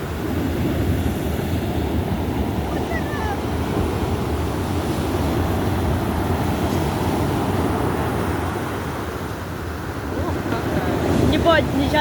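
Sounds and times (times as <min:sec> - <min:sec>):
waves: 0:00.0 - 0:12.0
wind buffeting the microphone: 0:00.0 - 0:12.0.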